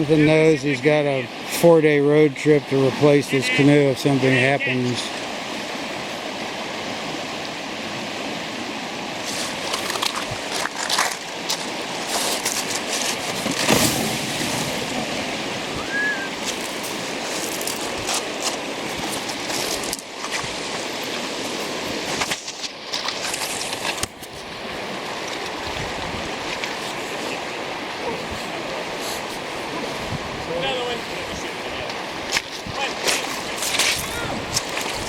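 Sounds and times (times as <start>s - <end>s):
river current rushing: 0.0s - 35.0s
knocks and splashes: 9.2s - 15.8s, 16.4s - 24.3s.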